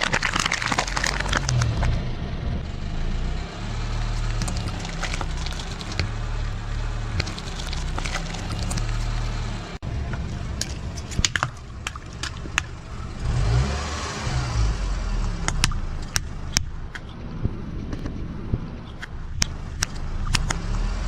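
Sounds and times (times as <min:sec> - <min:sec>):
objects crushed under tyres: 0:00.0 - 0:02.1, 0:03.6 - 0:13.6
car engine running low: 0:00.0 - 0:21.0.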